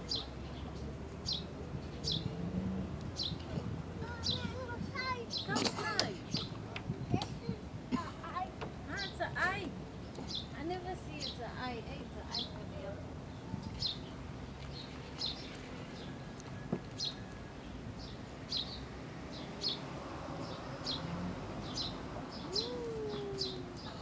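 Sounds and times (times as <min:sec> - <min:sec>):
faint outdoor background noise: 0:00.0 - 0:24.0
bird chirping: 0:13.3 - 0:24.0.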